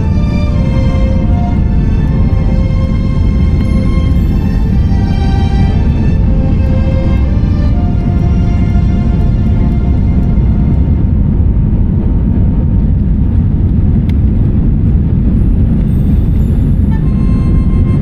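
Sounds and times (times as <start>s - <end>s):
faint background music tones: 0.0s - 12.3s
airliner cabin rumble: 0.0s - 18.0s.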